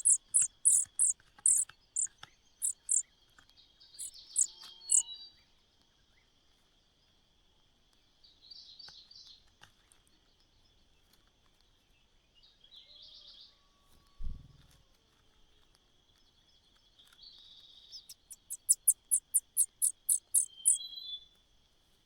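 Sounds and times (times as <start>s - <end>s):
high-pitched insect drone: 0.0s - 1.6s, 2.6s - 3.0s, 18.1s - 20.8s
small birds chirping: 0.0s - 3.1s, 3.8s - 5.1s, 16.2s - 20.9s.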